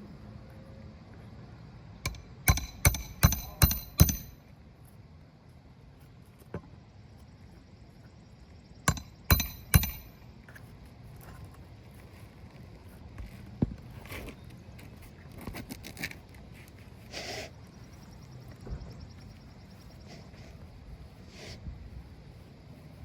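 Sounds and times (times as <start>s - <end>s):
hammer striking a nail: 2.1s - 4.4s, 8.9s - 10.2s.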